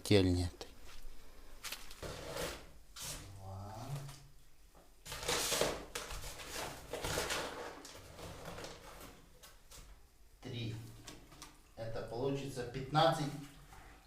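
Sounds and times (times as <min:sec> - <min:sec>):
scraping and rustling handling noise: 0:05.1 - 0:10.0.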